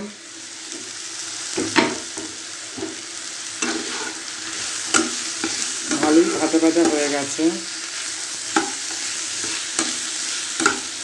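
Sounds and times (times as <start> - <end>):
food sizzling in a hot pan: 0.0 - 11.0
spatula striking a pan: 1.6 - 3.0, 4.8 - 7.0, 8.5 - 11.0.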